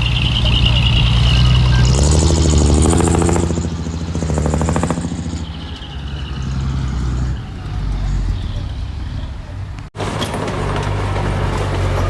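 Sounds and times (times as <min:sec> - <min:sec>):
heavy diesel machine engine running: 0:00.0 - 0:05.6.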